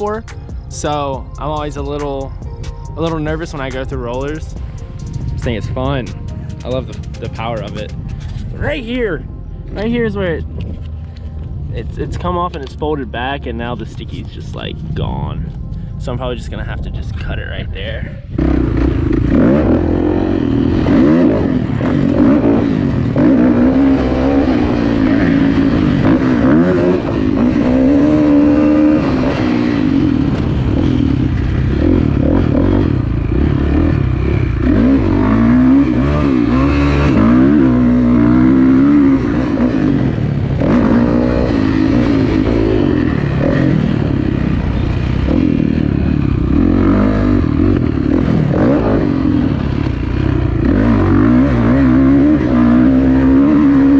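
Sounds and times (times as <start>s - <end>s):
dirt bike engine revving: 18.3s - 53.9s.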